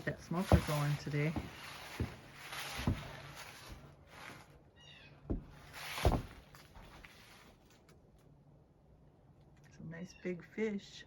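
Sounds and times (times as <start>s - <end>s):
footsteps crunching in snow: 0.0s - 4.6s, 5.3s - 7.8s
rustling: 0.0s - 4.7s, 5.3s - 8.4s.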